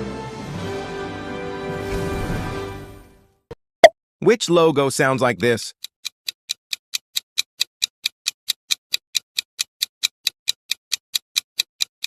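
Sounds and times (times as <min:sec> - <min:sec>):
countdown timer ticking: 0:05.7 - 0:12.0.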